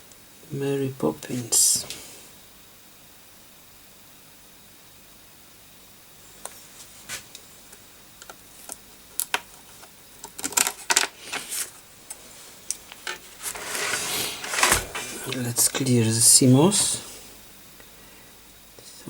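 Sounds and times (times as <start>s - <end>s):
hardware clicks and rattles: 10.2s - 11.5s.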